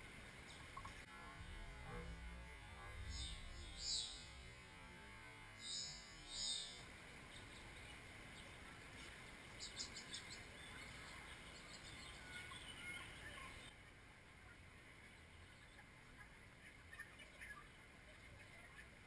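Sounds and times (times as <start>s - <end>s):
faint high bird chirps: 7.4s - 13.7s.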